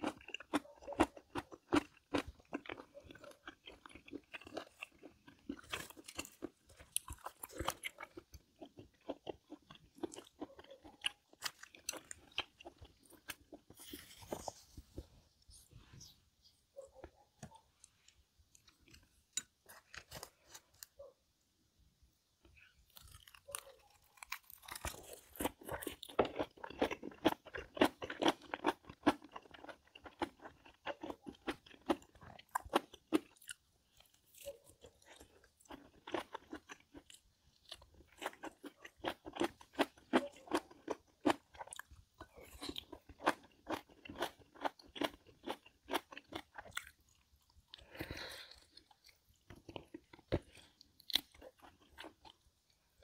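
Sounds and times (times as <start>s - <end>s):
person chewing crunchy food: 0.0s - 16.1s, 16.8s - 21.1s, 22.4s - 53.0s.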